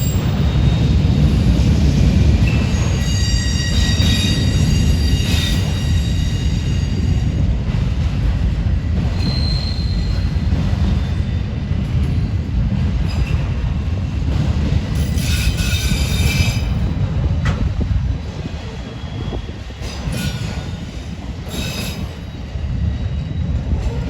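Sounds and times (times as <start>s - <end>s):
train wheels squealing: 0.0s - 7.4s, 9.0s - 11.6s, 13.0s - 13.7s, 14.9s - 17.0s, 18.2s - 24.0s
freight train wheels rumbling: 0.0s - 24.0s.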